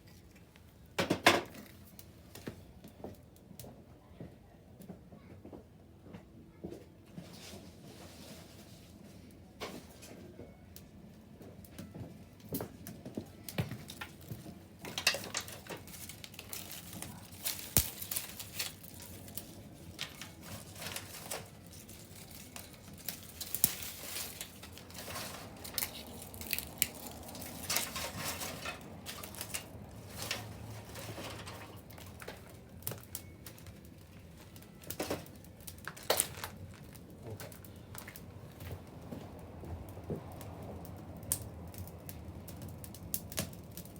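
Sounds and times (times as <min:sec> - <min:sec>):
bonfire crackling and popping: 0:10.8 - 0:43.9
low rush of flames: 0:12.5 - 0:43.9.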